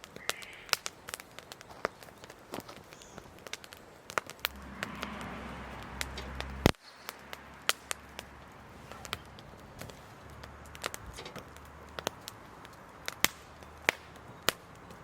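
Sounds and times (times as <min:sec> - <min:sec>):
wood fire crackling: 0:00.0 - 0:15.0
low rumble: 0:04.5 - 0:11.9.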